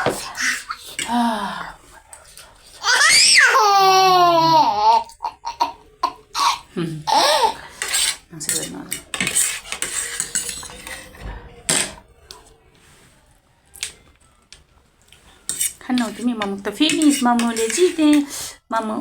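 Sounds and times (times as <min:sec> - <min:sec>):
cutlery clinking against a bowl: 0:07.8 - 0:12.0, 0:15.5 - 0:18.3.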